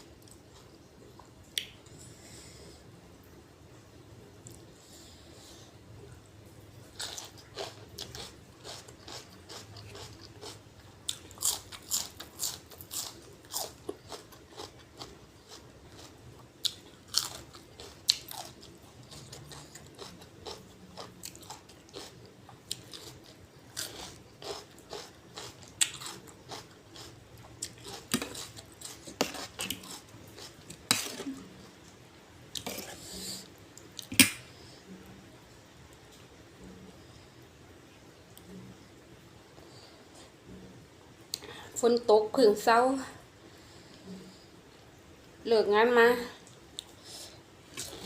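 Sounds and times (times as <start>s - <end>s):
person chewing crunchy food: 6.8s - 31.5s.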